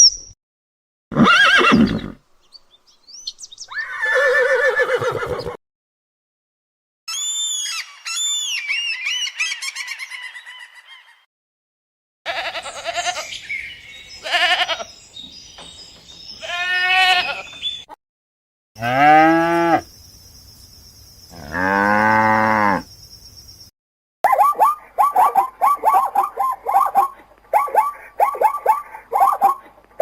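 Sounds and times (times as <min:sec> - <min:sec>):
animals bleating: 0:12.3 - 0:13.4, 0:14.2 - 0:14.9, 0:16.4 - 0:17.6.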